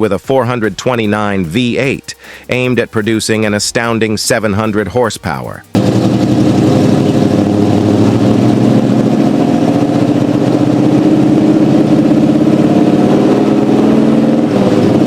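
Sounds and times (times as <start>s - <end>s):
car engine idling: 5.5s - 15.0s.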